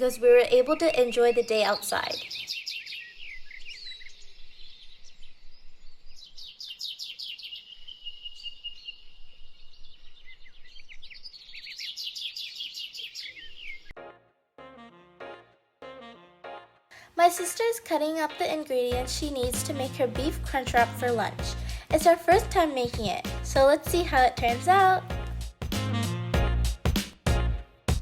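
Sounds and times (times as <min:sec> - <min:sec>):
birds chirping and trilling: 0:00.0 - 0:14.0.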